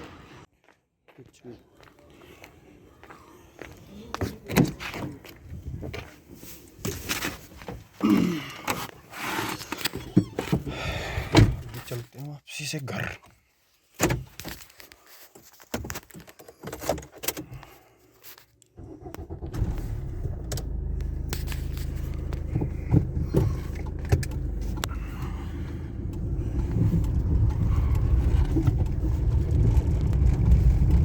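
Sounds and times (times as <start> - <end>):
vehicle engine starting and running: 18.8 - 31.0.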